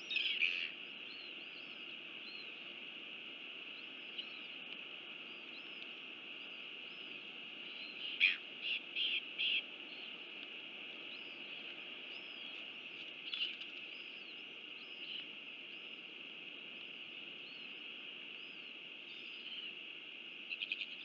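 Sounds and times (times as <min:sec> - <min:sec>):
loud bird calls: 0:00.0 - 0:02.7, 0:03.7 - 0:10.3, 0:10.9 - 0:16.1, 0:16.8 - 0:21.0
small birds chirping: 0:00.0 - 0:21.0
steady high hiss: 0:00.0 - 0:21.0.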